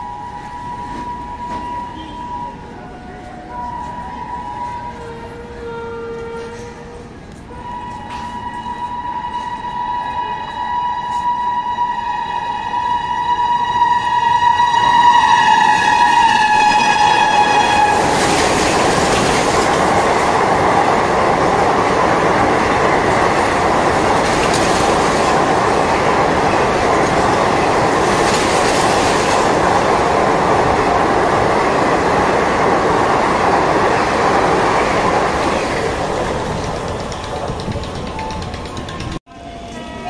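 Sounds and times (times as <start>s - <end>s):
train horn: 0.0s - 19.7s, 39.2s - 40.0s
train wheels rumbling on rails: 0.0s - 40.0s.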